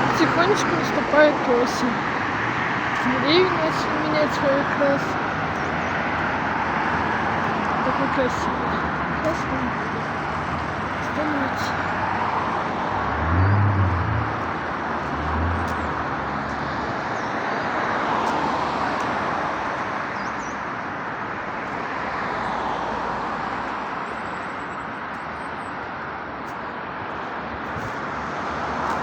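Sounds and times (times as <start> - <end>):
outdoor rushing noise: 10.1 - 17.0.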